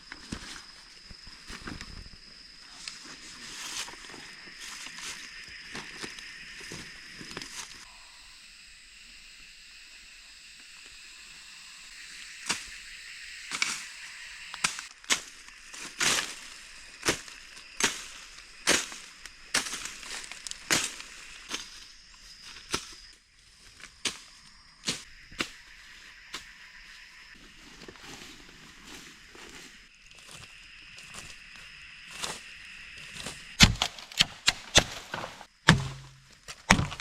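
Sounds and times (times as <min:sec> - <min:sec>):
sharp knocks: 0:33.6 - 0:37.0.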